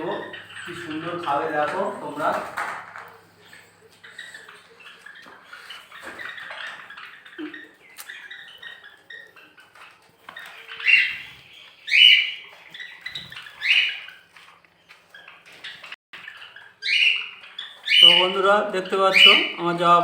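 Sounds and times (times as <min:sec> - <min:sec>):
cage birds chirping: 0:00.0 - 0:20.0
shrill bird calls: 0:10.4 - 0:14.3, 0:15.1 - 0:19.6.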